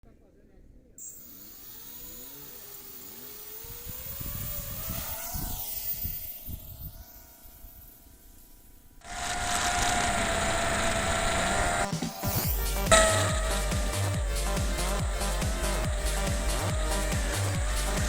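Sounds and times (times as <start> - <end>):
quadcopter motors whining: 1.0 - 18.0
wind rumble on microphone: 3.8 - 7.0
loud music: 12.4 - 18.0.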